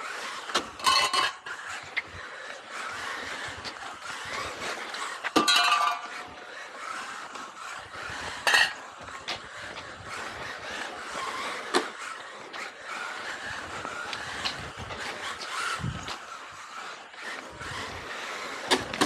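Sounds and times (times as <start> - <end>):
rc car motor and tyres hiss: 0.0 - 19.0
sharp clinking bursts: 5.4 - 6.4.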